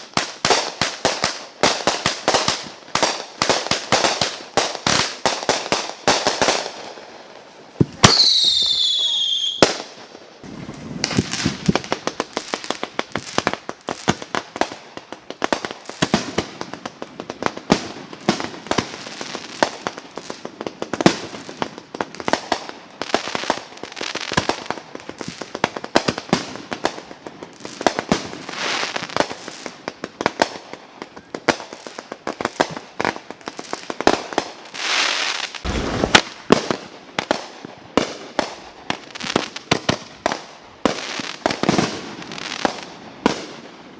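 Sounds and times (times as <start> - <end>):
fireworks popping and crackling: 0.0 - 43.9
fireworks hissing: 10.4 - 13.5, 34.8 - 36.8.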